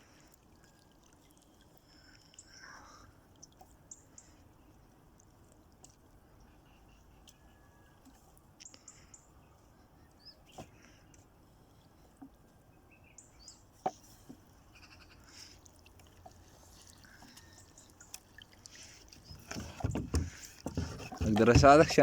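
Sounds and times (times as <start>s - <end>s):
light knocks: 19.4s - 22.0s.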